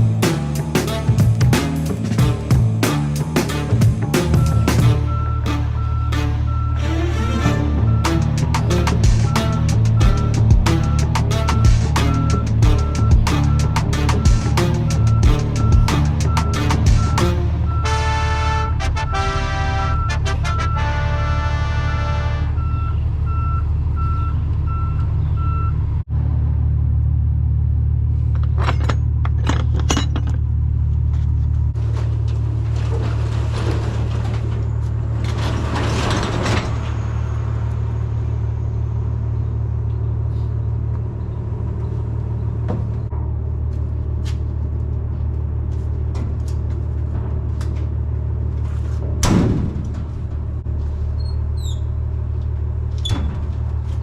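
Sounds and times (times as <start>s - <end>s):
truck engine droning: 0.0s - 54.0s
reversing beeper: 4.2s - 18.1s, 19.0s - 20.9s, 22.6s - 25.8s.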